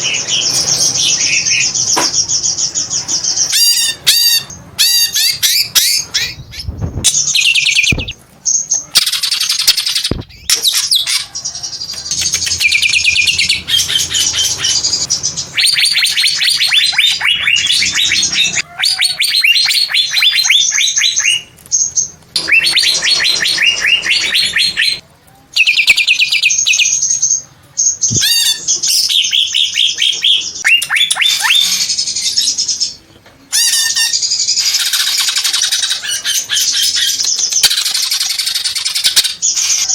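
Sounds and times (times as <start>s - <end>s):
bird singing rapid chattering phrases: 0.0s - 25.0s, 33.6s - 39.9s.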